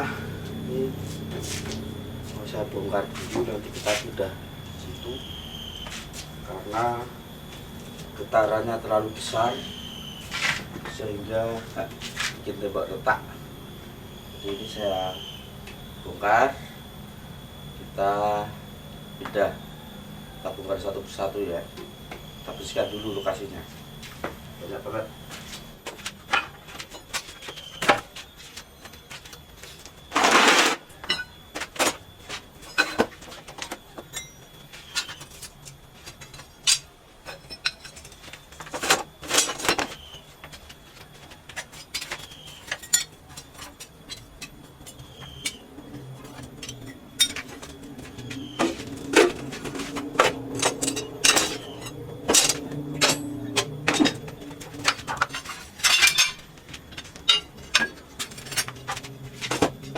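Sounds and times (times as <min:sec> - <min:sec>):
knocks and clatters of hand work: 0:25.3 - 0:59.9.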